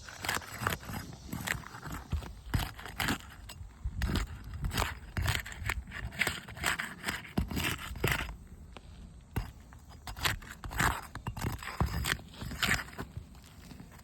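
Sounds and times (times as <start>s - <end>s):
roof shingles scraping and crackling: 9.3s - 14.0s.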